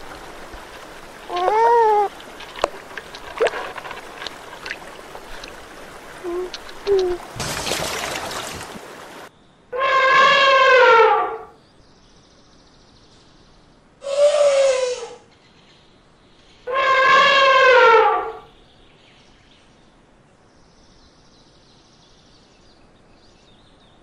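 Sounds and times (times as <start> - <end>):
elephant trumpeting: 1.3 - 2.2, 9.8 - 11.5, 16.7 - 18.4.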